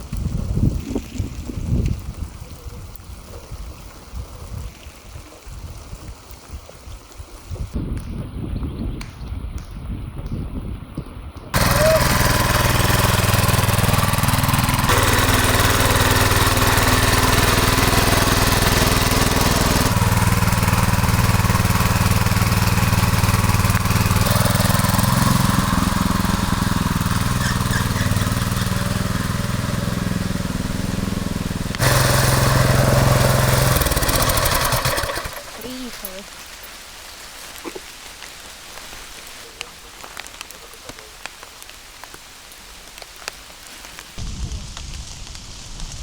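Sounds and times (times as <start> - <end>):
walk-behind tractor engine running: 11.6 - 36.3.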